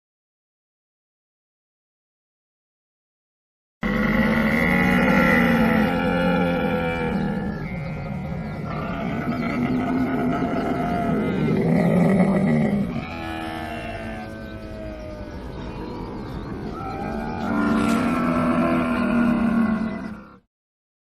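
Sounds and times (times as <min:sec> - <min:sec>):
camel calling: 0:03.8 - 0:20.4.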